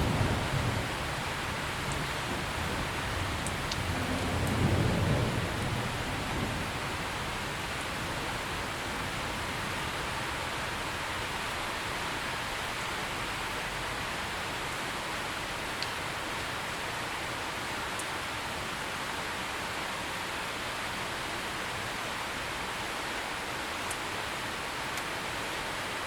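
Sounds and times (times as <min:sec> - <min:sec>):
distant thunder rumble: 0:00.0 - 0:10.2
heavy rain falling: 0:00.0 - 0:26.0.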